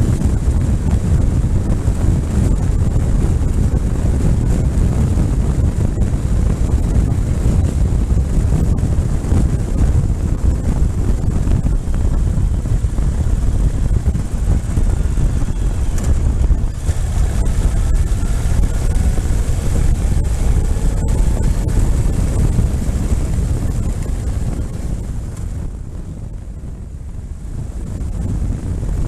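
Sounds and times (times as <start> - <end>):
faint engine and road sound: 0.0 - 29.0
wind rumble on microphone: 0.0 - 29.0.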